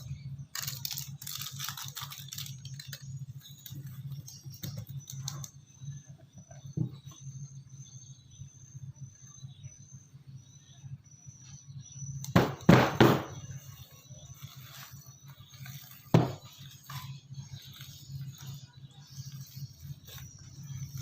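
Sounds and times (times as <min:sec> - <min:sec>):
low steady hum: 0:00.0 - 0:21.0
sharp kitchen knocks: 0:12.4 - 0:13.4, 0:16.2 - 0:16.4.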